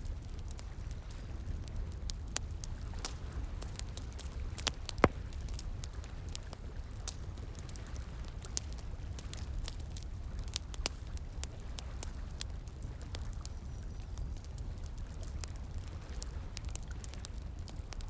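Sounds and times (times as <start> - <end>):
wood fire crackling and popping: 2.0 - 7.6.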